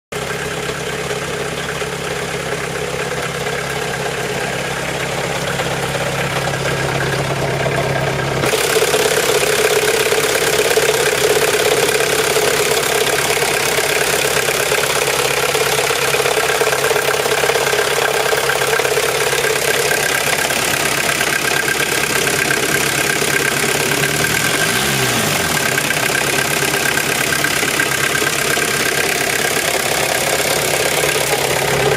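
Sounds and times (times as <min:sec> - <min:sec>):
diesel engine idling: 0:00.1 - 0:31.9.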